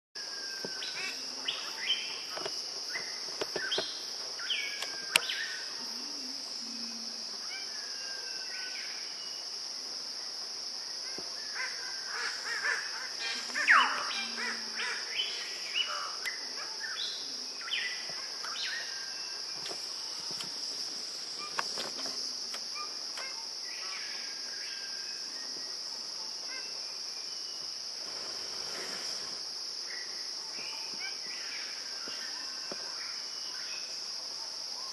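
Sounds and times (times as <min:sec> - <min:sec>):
high-pitched insect drone: 0:11.1 - 0:26.8.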